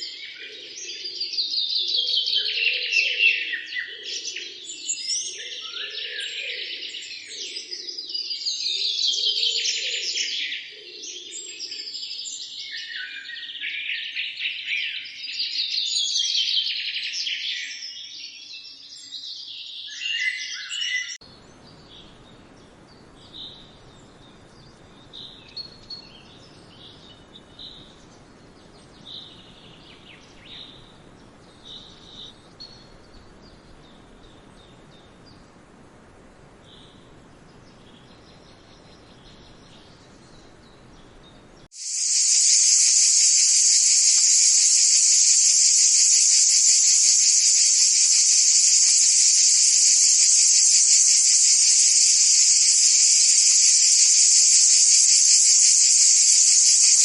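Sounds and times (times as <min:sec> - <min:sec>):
birds chirping: 0:20.7 - 0:57.0
low steady background hiss: 0:21.2 - 0:57.0
shrill insect drone: 0:41.8 - 0:57.0.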